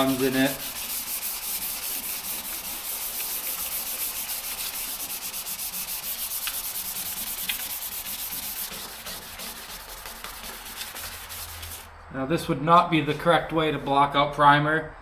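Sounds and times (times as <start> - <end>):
hand sanding with sandpaper: 0.0 - 11.9.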